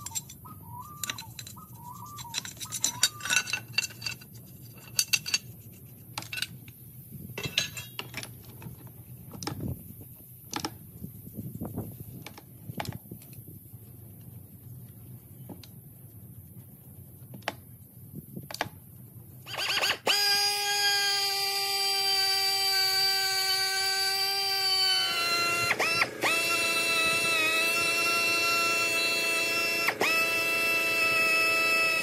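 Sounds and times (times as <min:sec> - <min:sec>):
electric power tool motor running: 0:19.5 - 0:32.0.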